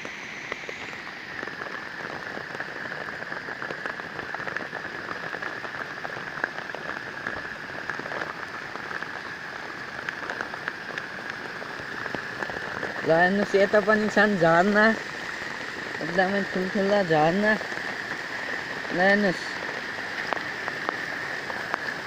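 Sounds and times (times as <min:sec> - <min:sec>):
raindrops hitting close by: 0:00.0 - 0:22.0
rainwater pouring into a pond: 0:00.0 - 0:22.0
steady rain: 0:00.0 - 0:22.0.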